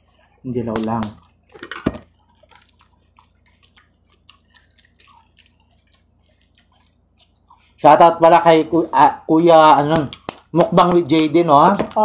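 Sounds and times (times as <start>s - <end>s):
wet chewing and mouth smacks: 0.0s - 7.8s, 9.4s - 11.4s
shell being peeled crackles: 0.2s - 7.8s, 8.6s - 12.0s
egg shell cracking tap: 9.8s - 12.0s.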